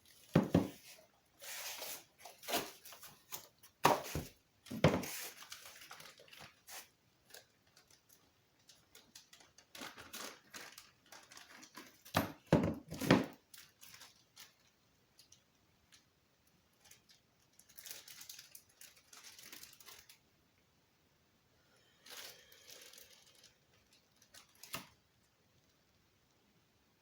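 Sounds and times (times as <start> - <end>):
crinkling plastic packaging: 0.0 - 20.3, 21.8 - 25.7
cardboard rustling: 0.1 - 6.9.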